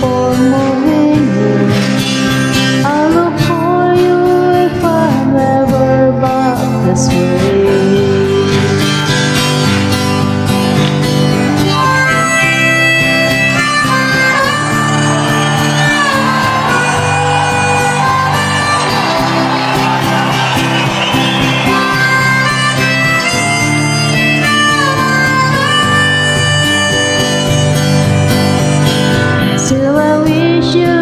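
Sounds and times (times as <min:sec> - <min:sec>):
strummed acoustic guitar: 0:00.0 - 0:31.0
harmonica melody: 0:08.2 - 0:29.8.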